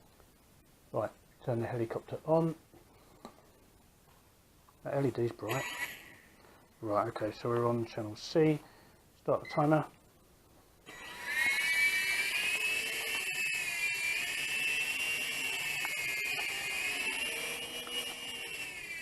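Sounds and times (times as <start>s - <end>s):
small helicopter motor whine: 5.5s - 6.3s, 10.9s - 19.0s.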